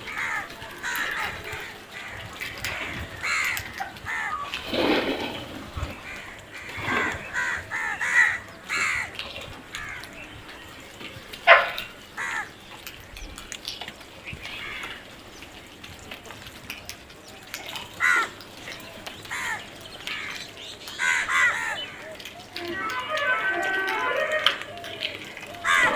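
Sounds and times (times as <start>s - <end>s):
crows cawing: 0.0s - 4.5s, 6.0s - 10.1s, 11.5s - 12.6s, 14.6s - 15.1s, 17.9s - 18.4s, 19.3s - 25.9s.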